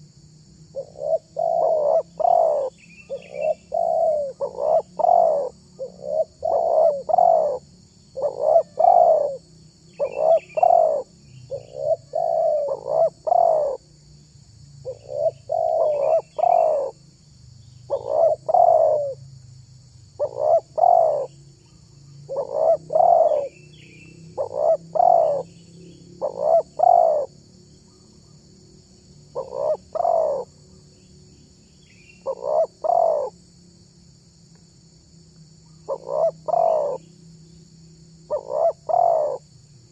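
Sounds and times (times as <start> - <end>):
dove cooing: 0.7 - 9.4, 10.0 - 13.8, 14.8 - 17.0, 17.9 - 19.2, 20.2 - 21.3, 22.3 - 23.7, 24.3 - 25.6, 26.2 - 27.3, 29.3 - 30.6, 32.2 - 33.4, 35.7 - 37.1, 38.3 - 39.5
small bird chirping: 0.7 - 19.2, 20.1 - 28.4, 29.0 - 33.4, 35.6 - 37.7, 38.3 - 39.9.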